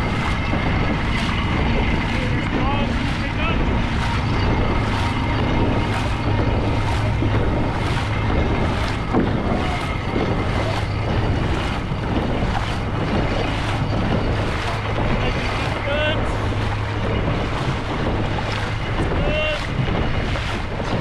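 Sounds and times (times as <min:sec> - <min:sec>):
low hum: 0:00.0 - 0:21.0
paddles pulling through water: 0:00.0 - 0:21.0
water wash: 0:00.0 - 0:21.0
wind on microphone: 0:00.0 - 0:21.0.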